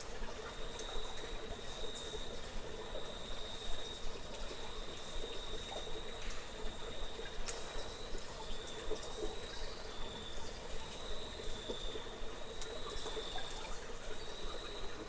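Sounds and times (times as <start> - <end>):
constant hiss: 0.0 - 15.0
high-pitched insect trill: 6.8 - 15.0.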